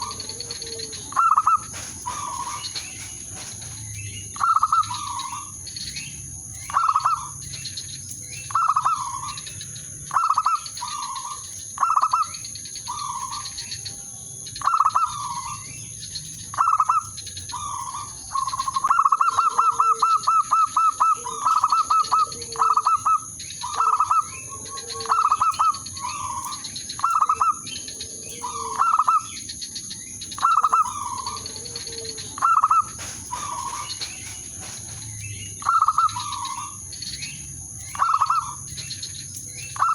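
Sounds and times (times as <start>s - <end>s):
fainter lower dove coos: 0.0s - 5.5s, 16.6s - 26.4s, 30.4s - 36.8s
dove cooing: 0.0s - 6.1s, 6.7s - 7.6s, 8.5s - 13.7s, 16.5s - 29.5s, 30.3s - 39.0s.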